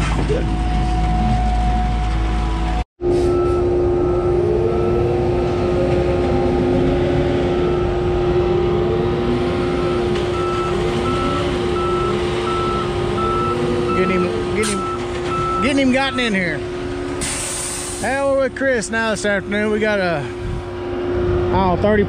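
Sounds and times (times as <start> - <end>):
diesel truck engine running: 0.0 - 22.0
reversing alarm beeping: 0.4 - 16.6.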